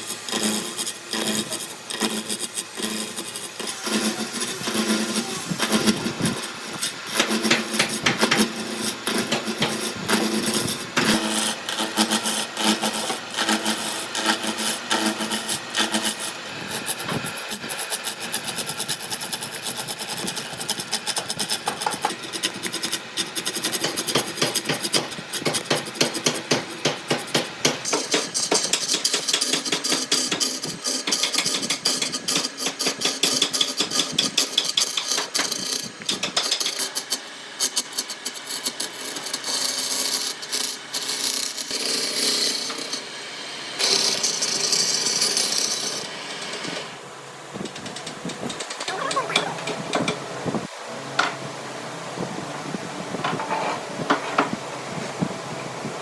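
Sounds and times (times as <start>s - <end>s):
tools tapping and scraping wood: 3.2s - 18.0s, 19.8s - 41.8s.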